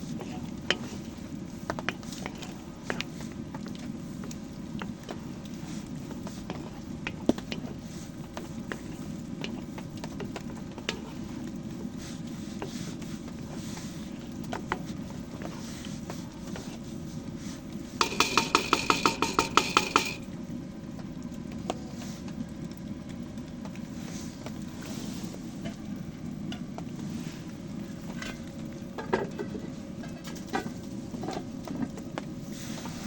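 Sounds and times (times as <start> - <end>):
metal utensil clinking on pot: 18.0 - 20.3.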